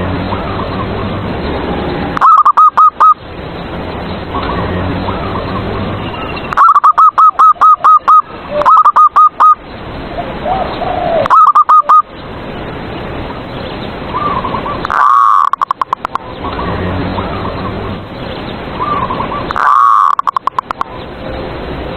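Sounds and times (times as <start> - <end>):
dove cooing: 2.1 - 3.2, 6.6 - 9.6, 10.4 - 12.0, 18.8 - 20.7.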